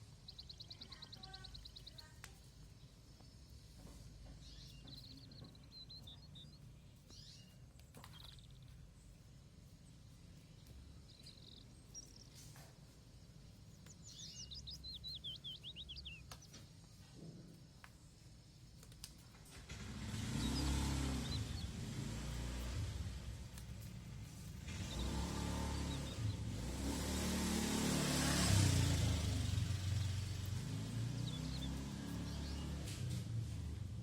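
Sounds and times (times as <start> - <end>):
faint bird chirps: 0.0 - 19.6, 20.2 - 27.3
low background rumble: 0.0 - 34.0.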